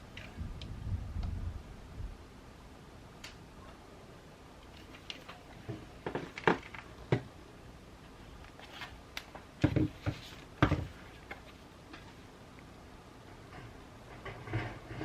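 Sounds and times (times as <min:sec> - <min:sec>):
knocks and rustles on a desk: 0:05.6 - 0:07.3, 0:09.6 - 0:11.5.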